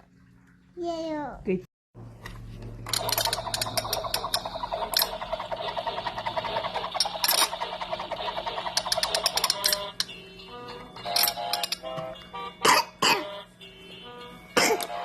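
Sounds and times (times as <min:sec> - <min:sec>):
electronic toy beeping: 0:02.9 - 0:12.6
electronic toy notes: 0:02.9 - 0:15.0.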